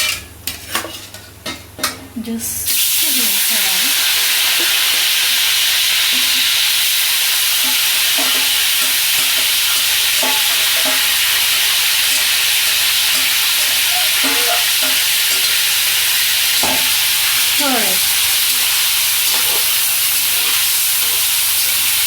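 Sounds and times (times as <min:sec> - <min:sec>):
chicken sizzling in oil: 0:02.7 - 0:22.0.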